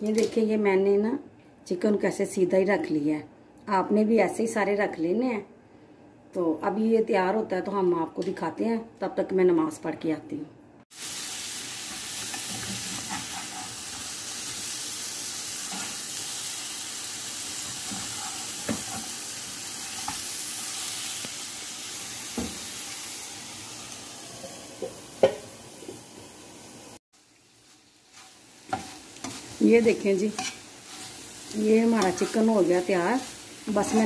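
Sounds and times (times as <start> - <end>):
chicken sizzling in frying pan: 10.9 - 34.0
spatula scraping and knocking pan: 12.2 - 14.0, 17.6 - 19.2, 28.1 - 34.0.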